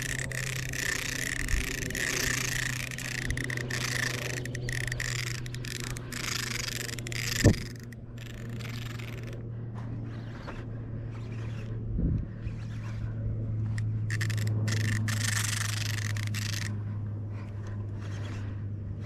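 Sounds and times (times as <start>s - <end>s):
fishing reel line and drag hissing: 0.0s - 9.4s, 13.7s - 16.8s
steady low hum: 0.0s - 19.0s.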